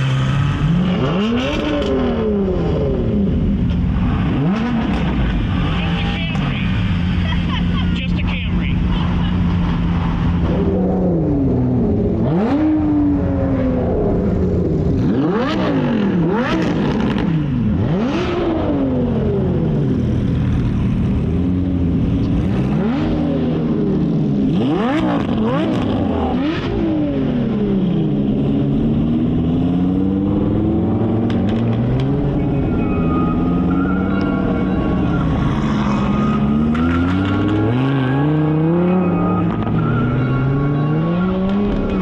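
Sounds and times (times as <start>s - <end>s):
car engine revving hard: 0.0s - 3.4s, 10.4s - 13.8s, 15.0s - 19.7s, 22.4s - 32.4s.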